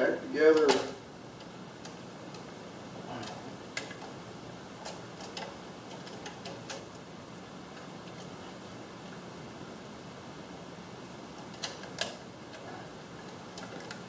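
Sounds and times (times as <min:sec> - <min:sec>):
low background hum: 0:00.0 - 0:14.0
small parts clicking and tapping: 0:11.4 - 0:14.0.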